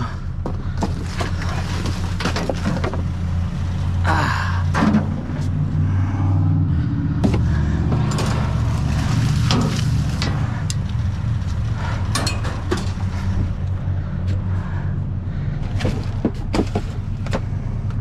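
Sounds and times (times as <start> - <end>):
vehicle engine idling: 0.0 - 18.0
scrap items knocking and clattering: 0.4 - 3.1, 15.7 - 17.5.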